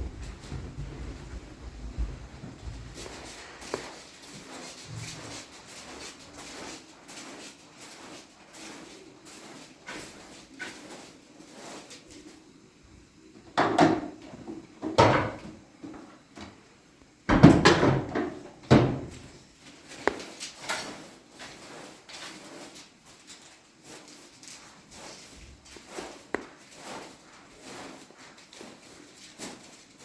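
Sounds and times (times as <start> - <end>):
knocks and clunks of handling: 17.3 - 19.3.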